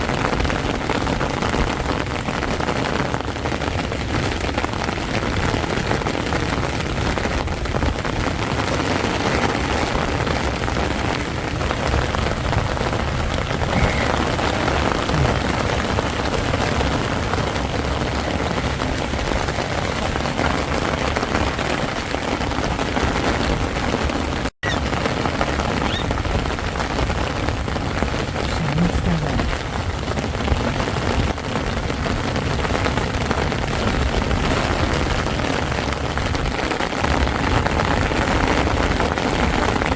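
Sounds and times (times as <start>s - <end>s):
heavy rain on tent fabric: 0.0s - 39.9s.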